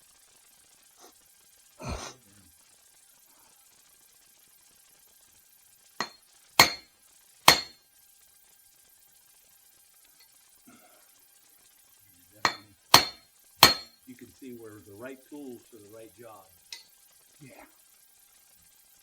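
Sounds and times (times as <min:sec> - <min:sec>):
hammer striking metal: 0:06.0 - 0:06.8, 0:07.5 - 0:07.7, 0:12.4 - 0:14.0.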